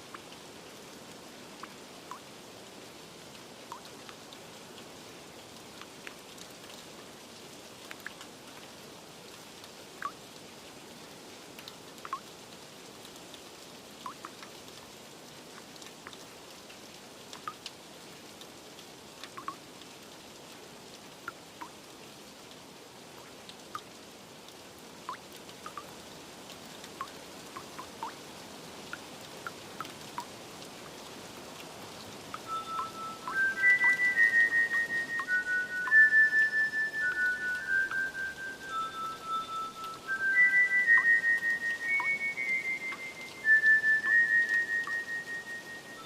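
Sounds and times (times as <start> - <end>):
steady rain: 0.0 - 46.0
drops plinking: 32.4 - 36.1, 37.0 - 43.1
soft chime notes: 32.4 - 43.4.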